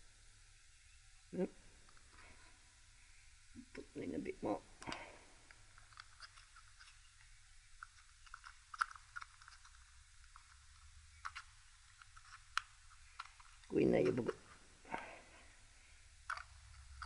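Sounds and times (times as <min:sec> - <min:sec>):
small metal parts clicking: 0:04.8 - 0:14.4, 0:16.2 - 0:17.0.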